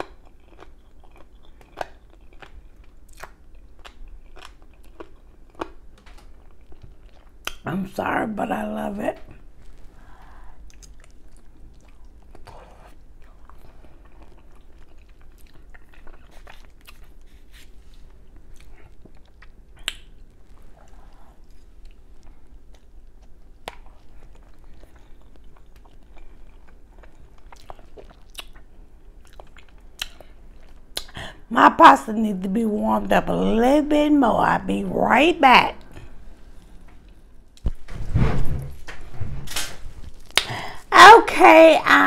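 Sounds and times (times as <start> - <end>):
chewing pasta: 0.0 - 7.6, 9.3 - 31.3
mouth clicks and smacks: 19.4 - 20.2, 27.6 - 28.6, 30.9 - 31.2, 40.3 - 40.7.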